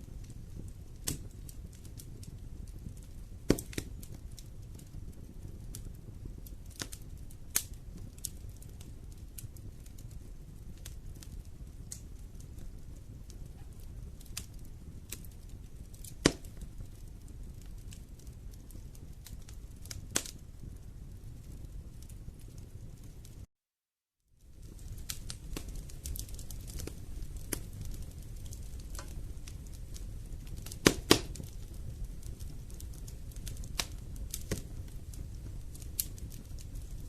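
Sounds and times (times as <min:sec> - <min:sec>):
wood fire crackling: 0:00.0 - 0:23.5, 0:24.3 - 0:37.0.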